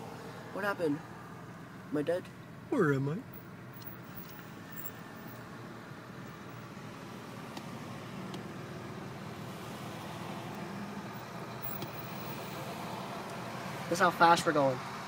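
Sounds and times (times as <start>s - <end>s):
car engine and road hum: 0.0s - 15.0s.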